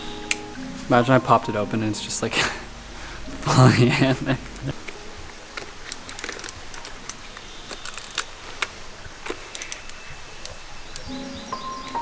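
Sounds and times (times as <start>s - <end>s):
film camera clicks and snaps: 4.6s - 12.0s.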